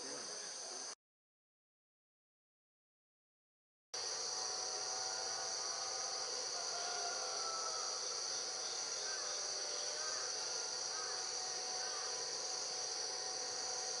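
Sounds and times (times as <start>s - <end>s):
low insect chirps: 0.0s - 1.0s, 4.0s - 14.0s
shrill insect trill: 0.0s - 1.0s, 4.0s - 14.0s.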